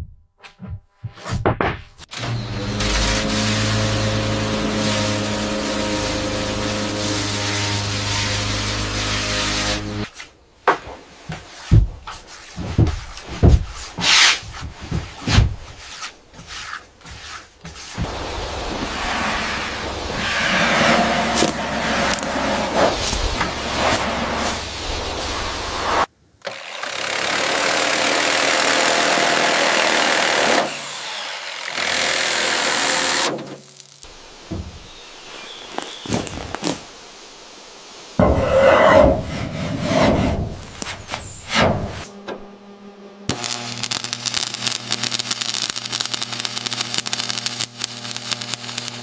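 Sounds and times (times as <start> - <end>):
knocks and thumps: 0.0 - 2.0, 10.6 - 16.5, 34.5 - 34.9
rasping scrape: 11.3 - 18.2, 18.8 - 26.1, 38.2 - 42.3.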